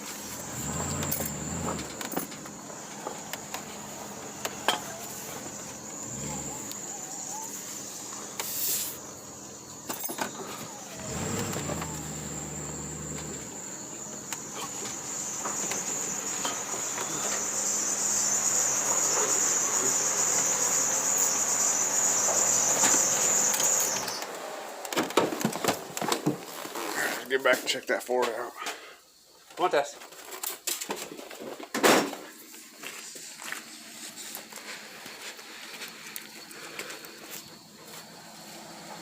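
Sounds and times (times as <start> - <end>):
crickets chirping: 0.0 - 39.0
low engine hum: 9.0 - 24.6.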